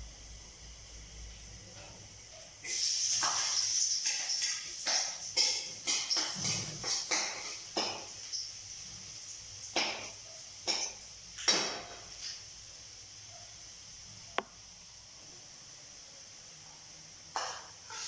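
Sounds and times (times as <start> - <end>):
low steady hiss: 0.0 - 18.0
utensil stirring in a pan: 2.6 - 12.3, 17.3 - 18.0.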